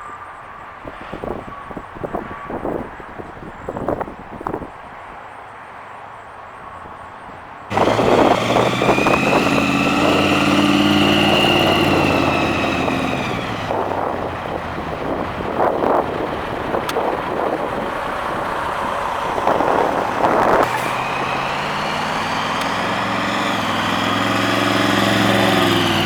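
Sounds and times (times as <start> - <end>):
car engine running loud: 7.7 - 26.0
supercharger whine: 7.7 - 26.0.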